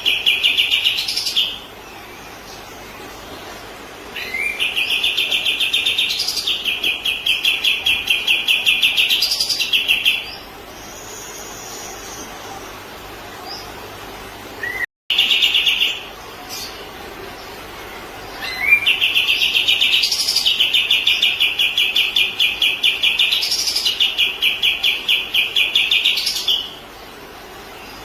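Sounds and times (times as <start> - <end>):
bird repeated chirping song: 0.0 - 2.7, 4.1 - 12.3, 14.6 - 16.8, 18.2 - 26.8.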